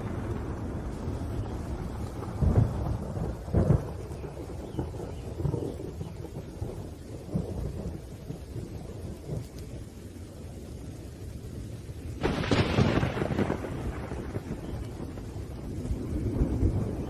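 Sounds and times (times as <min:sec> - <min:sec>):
loud thunder crack: 0:00.0 - 0:08.1, 0:12.2 - 0:17.0
rain: 0:00.0 - 0:17.0
thunder rumbling: 0:00.0 - 0:17.0.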